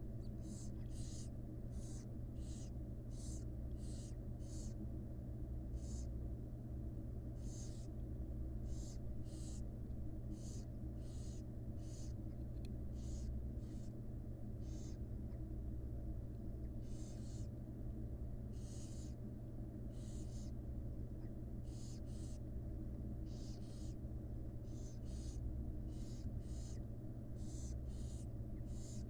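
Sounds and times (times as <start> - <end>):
low electrical hum: 0.0 - 29.0
owl chicks hissing: 0.2 - 4.8, 5.7 - 6.1, 7.3 - 8.0, 8.6 - 15.4, 16.6 - 17.6, 18.5 - 19.2, 19.8 - 20.6, 21.2 - 22.5, 23.2 - 29.0.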